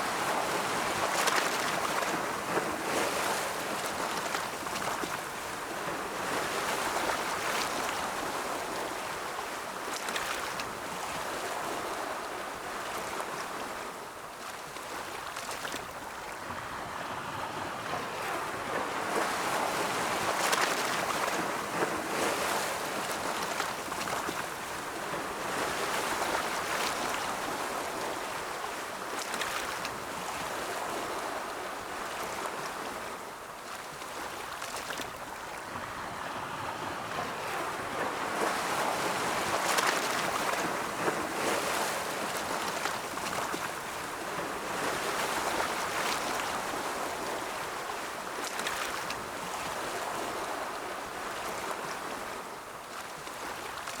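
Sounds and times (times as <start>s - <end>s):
ocean waves washing onto shore: 0.0s - 54.0s.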